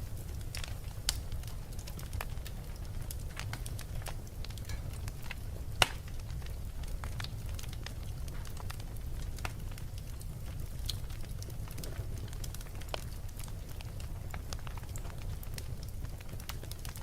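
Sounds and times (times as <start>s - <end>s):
wood fire crackling: 0.0s - 17.0s
sharp fire pop: 5.8s - 6.0s.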